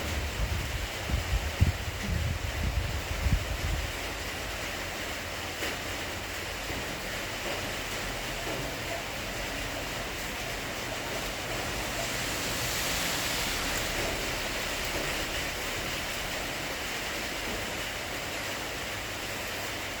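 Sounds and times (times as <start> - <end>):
storm wind: 0.0 - 4.6
rain: 0.0 - 20.0.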